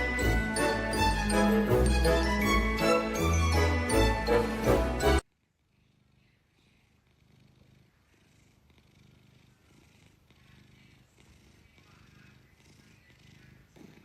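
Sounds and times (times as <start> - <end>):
cat purring: 5.4 - 14.0.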